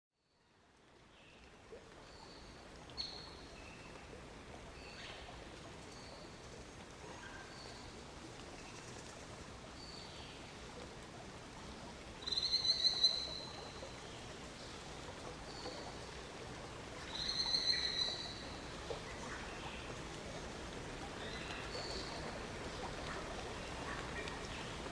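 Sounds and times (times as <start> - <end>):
rain hissing: 19.8 - 24.9.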